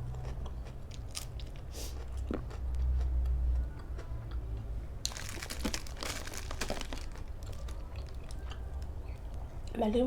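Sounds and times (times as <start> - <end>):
food wrapping crinkling: 5.0 - 8.6.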